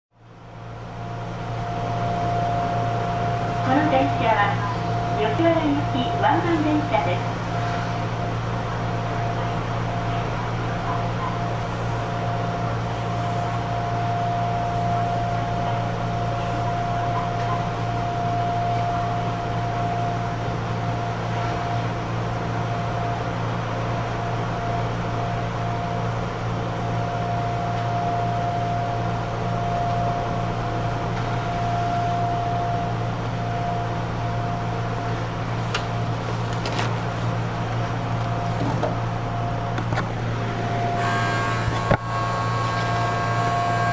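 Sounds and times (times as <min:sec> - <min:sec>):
air conditioning hum: 0:00.2 - 0:43.9
mid-pitched whine: 0:00.3 - 0:43.9.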